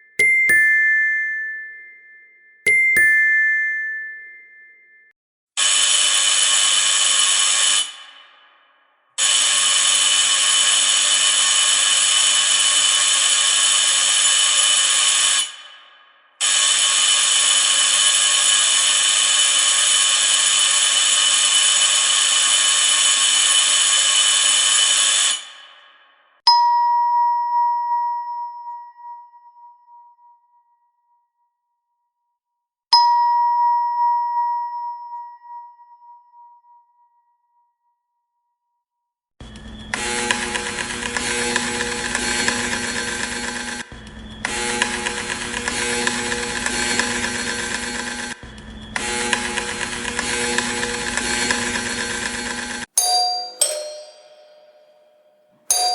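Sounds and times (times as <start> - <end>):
electric doorbell ringing: 0.0 - 4.9, 53.0 - 55.9.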